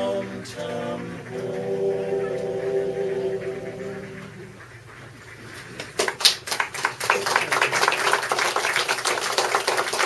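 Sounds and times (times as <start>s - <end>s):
audience applauding: 6.0s - 10.0s.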